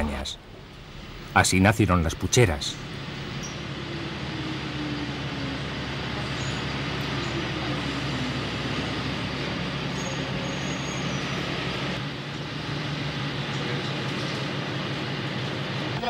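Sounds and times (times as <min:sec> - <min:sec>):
train rolling with low hum: 0:00.0 - 0:16.0.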